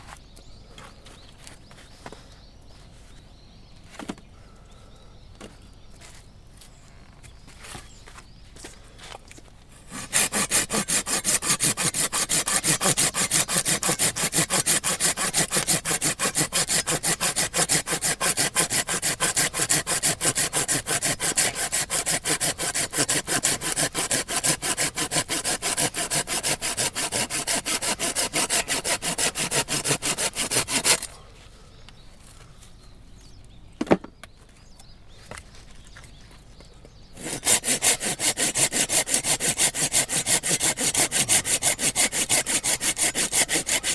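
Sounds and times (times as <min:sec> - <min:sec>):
hand saw cutting wood: 0:09.8 - 0:31.2, 0:37.2 - 0:43.9.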